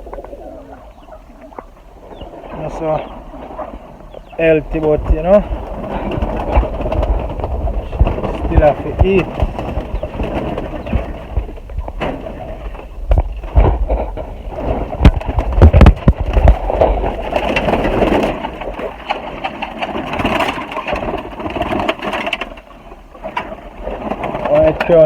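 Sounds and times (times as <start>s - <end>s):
pigeons cooing: 0.0s - 25.0s
handling knocks and thumps: 4.6s - 22.6s.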